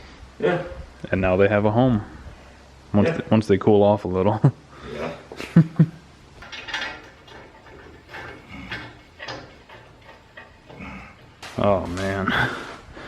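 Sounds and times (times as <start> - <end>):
metal parts clinking and scraping: 5.3 - 12.5.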